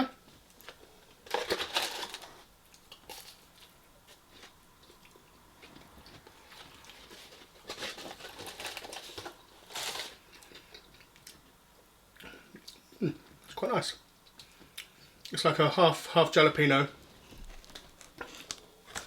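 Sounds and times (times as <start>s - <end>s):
food packaging crinkling: 0.3s - 11.3s, 17.0s - 19.0s
food being bitten and crunched: 17.5s - 19.0s.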